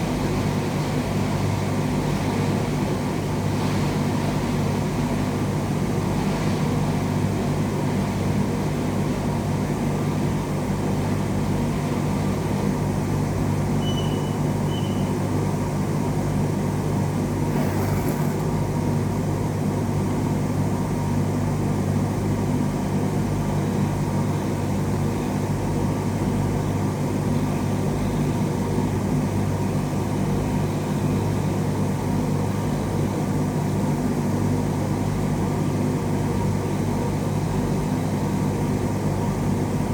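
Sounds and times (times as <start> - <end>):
low machine hum: 16.1 - 19.9.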